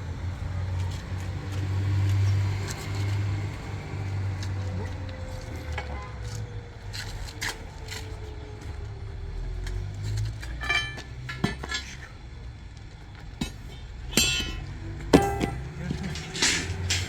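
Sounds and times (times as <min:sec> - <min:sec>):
dishes and utensils clinking: 0:10.5 - 0:12.0, 0:14.1 - 0:17.0.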